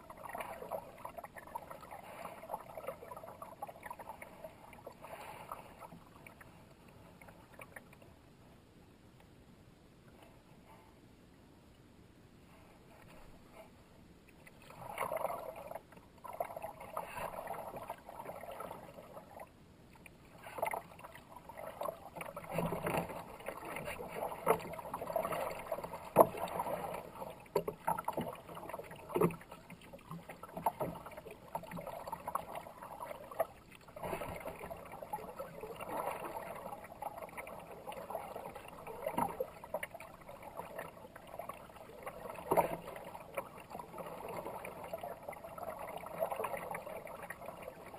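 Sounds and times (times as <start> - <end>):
paddle strokes splashing water: 14.5 - 19.5, 20.3 - 47.9.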